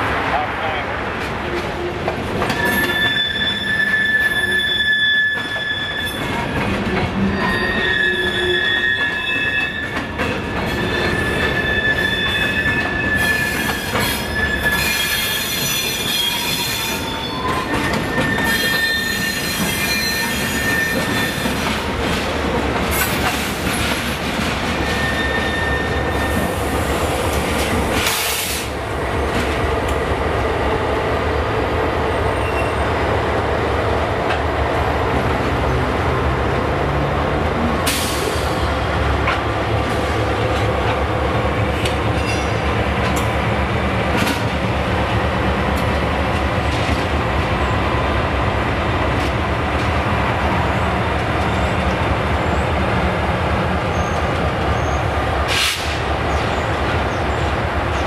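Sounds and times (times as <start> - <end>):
freight train rumble: 0.0 - 58.0
steel wheels squealing on rails: 1.5 - 22.2, 22.9 - 29.4, 32.1 - 33.1, 37.8 - 39.0, 41.6 - 44.7, 50.5 - 58.0.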